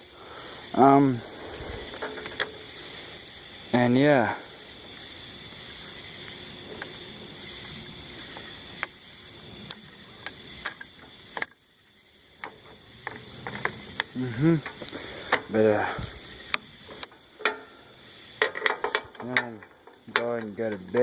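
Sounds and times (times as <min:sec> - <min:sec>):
crickets chirping: 0:00.0 - 0:21.0
sharp clicks and knocks: 0:01.7 - 0:03.3, 0:07.6 - 0:11.6, 0:12.4 - 0:21.0.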